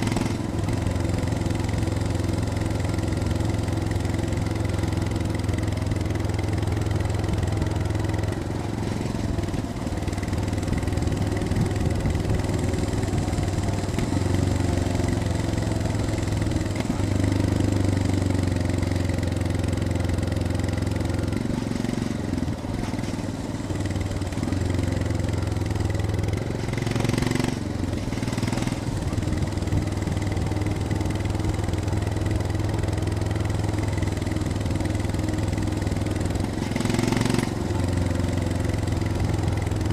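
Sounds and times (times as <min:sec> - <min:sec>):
motorcycle engine at low revs: 0:00.0 - 0:39.9.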